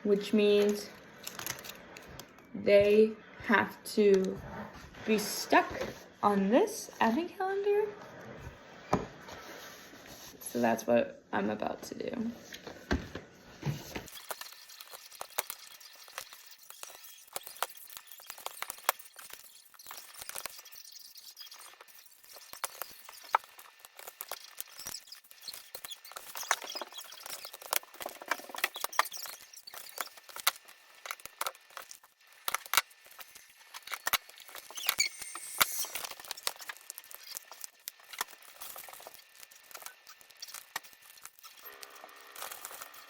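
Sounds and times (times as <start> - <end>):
paper rustling: 0.6 - 2.4, 35.6 - 43.0.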